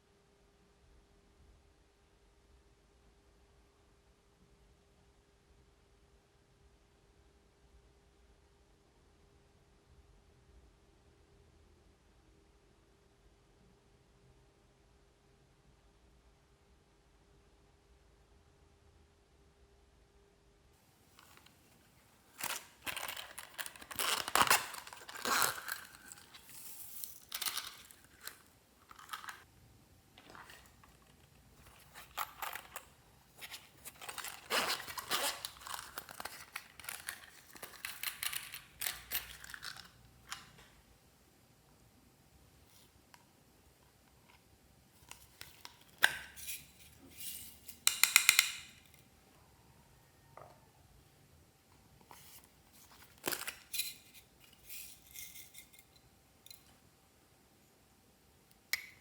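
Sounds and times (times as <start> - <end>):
small objects clinking in container: 22.2 - 29.5, 30.2 - 40.5, 45.0 - 48.9, 52.2 - 56.7
slime crinkling and crackling: 22.3 - 29.5.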